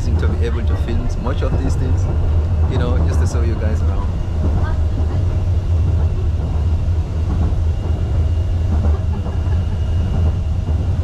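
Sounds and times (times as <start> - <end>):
monorail car rumbling: 0.0 - 11.0.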